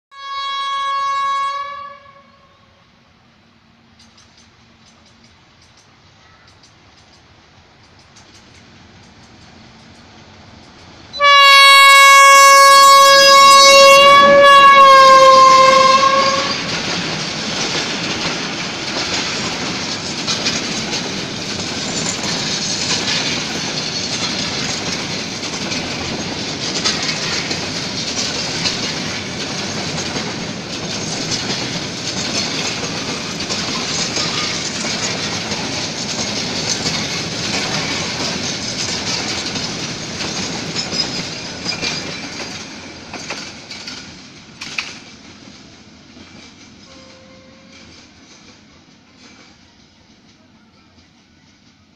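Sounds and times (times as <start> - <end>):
locomotive horn blast: 0.1 - 2.8, 11.2 - 16.7, 46.9 - 47.9
wheels clacking over rail joints: 3.9 - 51.9.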